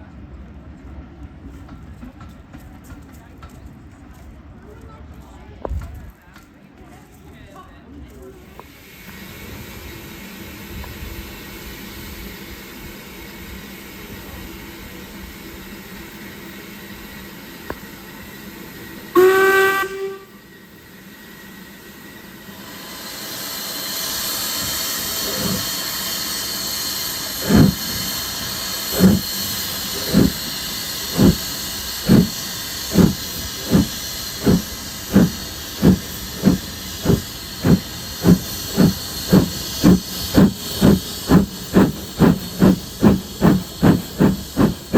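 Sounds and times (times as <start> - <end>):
loud hiss of steam: 8.6 - 44.9
steam locomotive exhaust beats: 8.6 - 44.9
steam whistle blast: 19.1 - 20.5.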